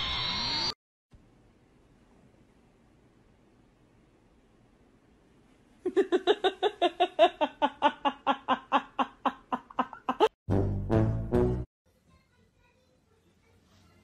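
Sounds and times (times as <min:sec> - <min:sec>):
person laughing: 0:05.8 - 0:10.4.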